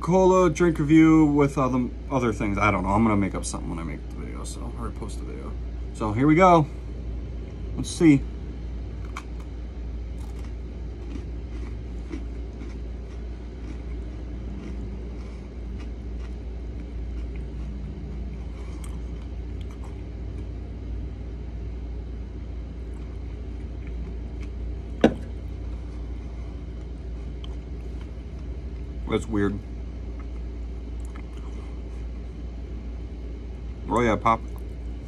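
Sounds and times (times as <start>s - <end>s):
steady low hum: 0.0s - 35.0s
person chewing cookie crunching: 8.8s - 21.4s, 22.1s - 29.1s, 29.7s - 32.8s, 34.0s - 35.0s.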